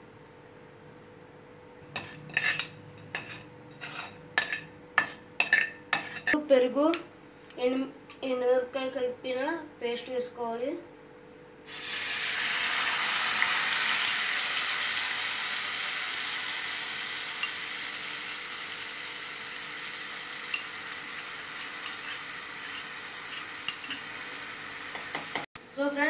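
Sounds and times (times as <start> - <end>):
paste sizzling in hot oil: 11.7 - 25.5.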